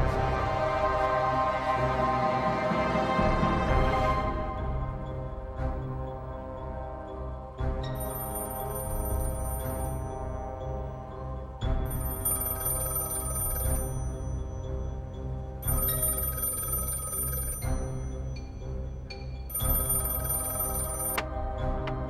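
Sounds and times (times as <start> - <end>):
background music: 0.0 - 22.0
bell telephone ringing: 8.0 - 10.0, 11.9 - 14.3, 15.6 - 18.1, 19.5 - 21.3.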